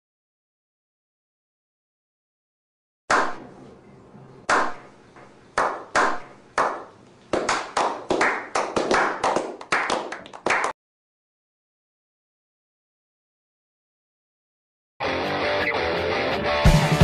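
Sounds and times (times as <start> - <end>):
men slow clapping: 5.6 - 10.8.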